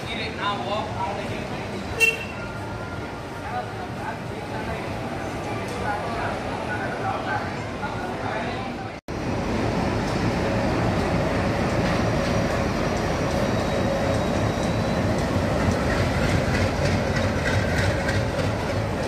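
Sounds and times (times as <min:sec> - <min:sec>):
train wheels rumbling on rail: 0:09.1 - 0:19.0
wheels clacking over rail joints: 0:10.0 - 0:19.0.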